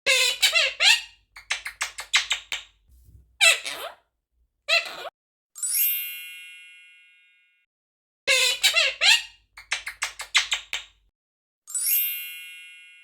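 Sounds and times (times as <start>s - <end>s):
parrot squawking and chattering: 0.1s - 2.7s, 3.4s - 4.0s, 4.7s - 5.1s, 8.3s - 10.9s
bell-like chime: 11.7s - 13.0s.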